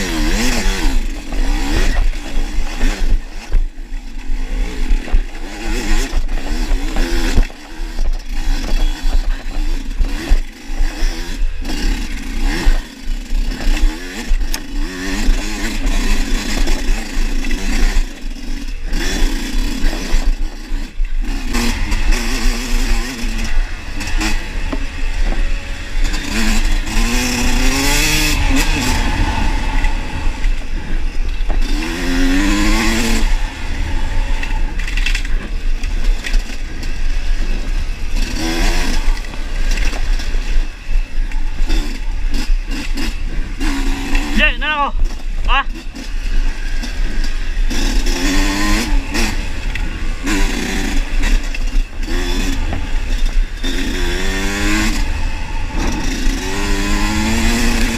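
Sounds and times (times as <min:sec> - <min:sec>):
bike knocks and rattles: 0:00.0 - 0:44.4
motorcycle engine revving: 0:00.0 - 0:57.9.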